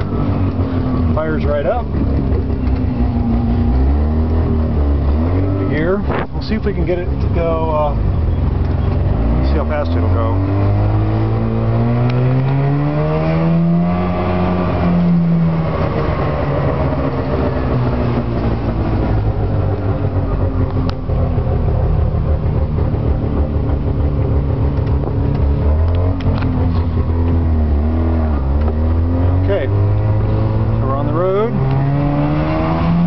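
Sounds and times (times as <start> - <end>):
car engine accelerating: 0.0 - 33.0.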